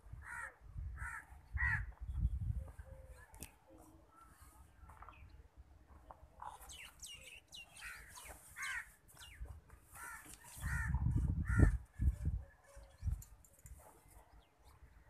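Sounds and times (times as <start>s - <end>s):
birds calling: 4.1s - 13.4s.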